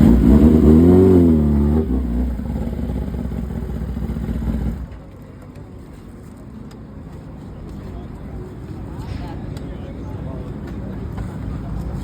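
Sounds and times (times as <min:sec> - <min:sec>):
motorcycle engine revving: 0:00.0 - 0:05.0.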